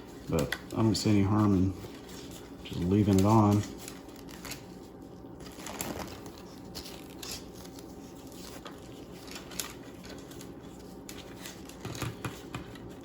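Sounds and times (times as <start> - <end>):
rustling and crinkling of wrap: 0.0 - 13.0.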